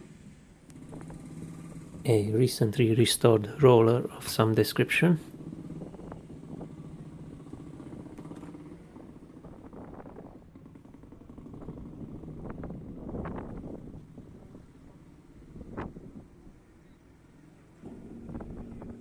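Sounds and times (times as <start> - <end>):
vehicle engine idling: 0.0 - 19.0
people talking: 2.1 - 5.3.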